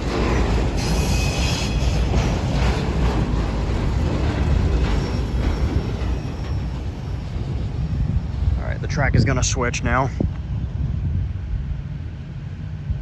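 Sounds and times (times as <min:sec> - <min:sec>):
high-pitched rail noise: 0:00.0 - 0:09.0
train wheels rumbling on rail: 0:00.0 - 0:13.0.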